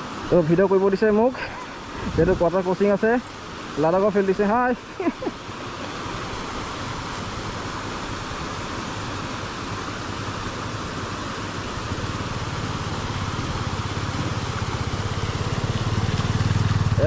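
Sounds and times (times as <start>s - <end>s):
rushing water hiss: 0.0s - 17.0s
motorcycle engine running: 9.6s - 17.0s.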